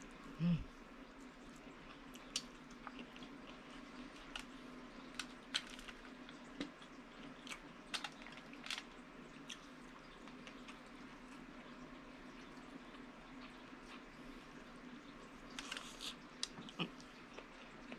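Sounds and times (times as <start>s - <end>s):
steady low hum: 0.0s - 17.9s
chewing with wet smacks: 1.2s - 4.5s, 15.6s - 17.9s.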